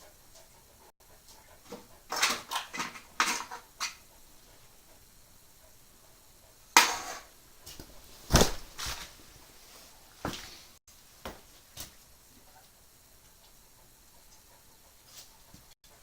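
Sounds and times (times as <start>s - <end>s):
objects knocking and clattering: 1.7s - 4.0s, 6.8s - 7.3s.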